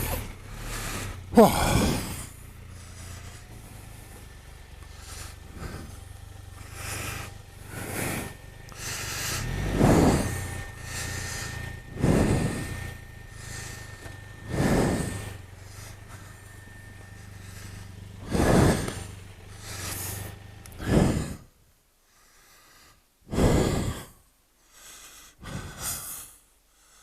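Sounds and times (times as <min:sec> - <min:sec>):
person breathing hard: 0:00.0 - 0:27.0.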